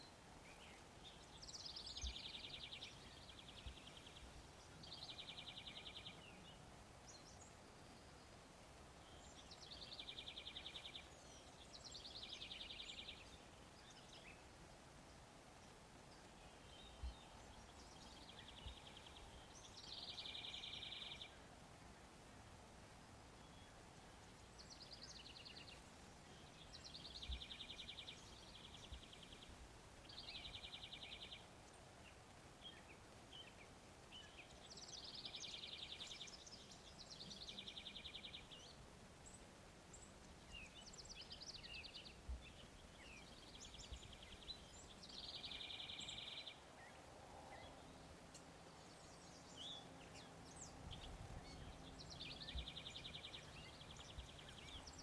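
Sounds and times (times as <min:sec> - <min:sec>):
small birds buzzy trills: 0:00.0 - 0:55.0.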